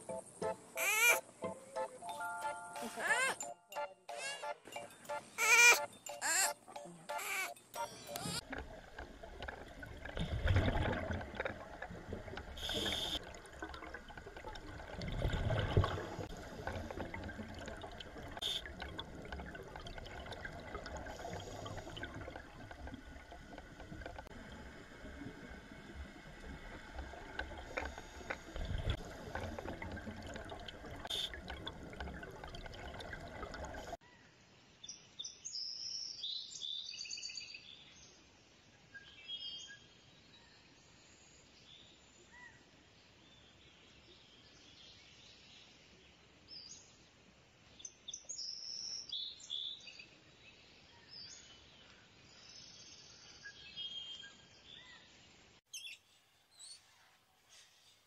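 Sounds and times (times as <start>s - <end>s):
underwater bubbling: 8.1s - 34.0s.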